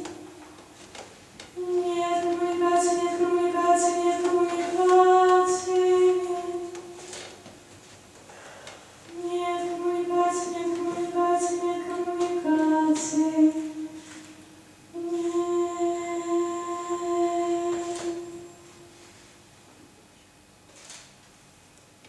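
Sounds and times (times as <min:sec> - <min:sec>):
woman singing unaccompanied: 0:00.0 - 0:00.4, 0:01.5 - 0:07.4, 0:09.1 - 0:19.0.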